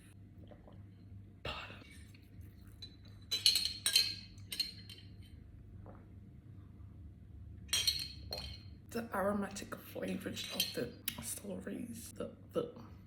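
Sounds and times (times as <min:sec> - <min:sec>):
glassware clinking: 0:02.7 - 0:05.3, 0:07.7 - 0:08.7.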